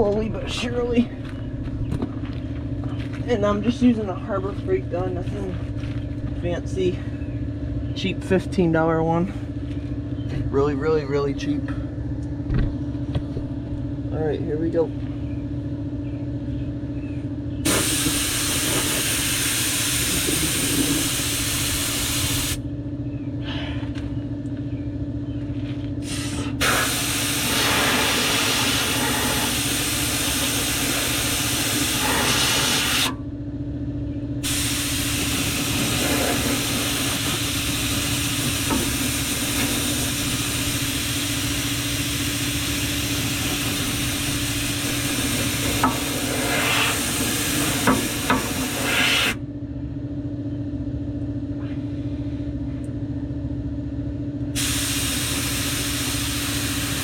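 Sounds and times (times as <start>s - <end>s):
low motor hum: 0.0s - 57.0s
spray gun hissing: 17.7s - 22.6s, 26.6s - 33.1s, 34.4s - 49.4s, 54.6s - 57.0s.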